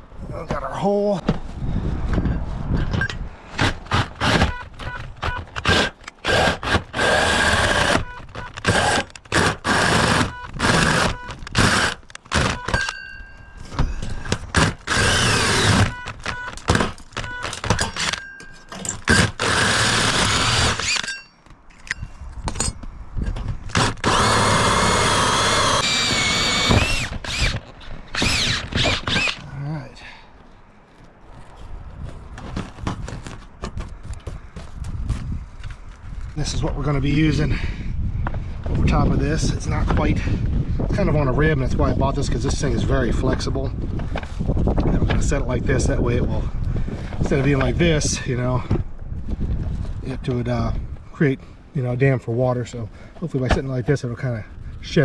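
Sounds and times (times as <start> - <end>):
power drill whining: 3.9 - 13.0, 14.4 - 18.2, 18.9 - 21.2, 23.7 - 29.5
tools knocking and clanking: 16.1 - 19.2, 21.0 - 23.8.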